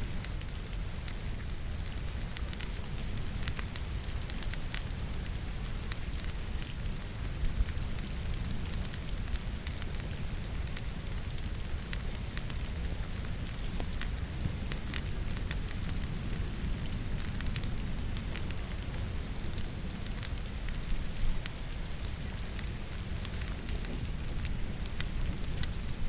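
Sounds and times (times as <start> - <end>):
logs crackling in a fireplace: 0.0 - 26.0
steady rain: 0.0 - 26.0.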